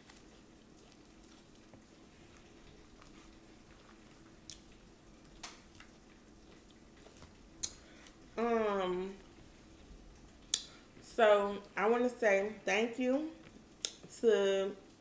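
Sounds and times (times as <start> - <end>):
person chewing salad: 0.0 - 8.4, 9.2 - 11.0, 13.4 - 14.1.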